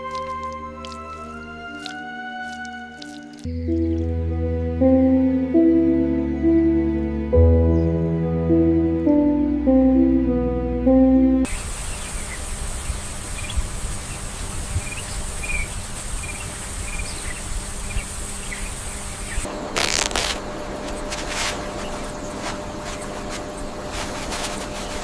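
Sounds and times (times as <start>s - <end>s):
insect-like buzz: 19.6s - 25.0s
brief rustling: 19.7s - 25.0s.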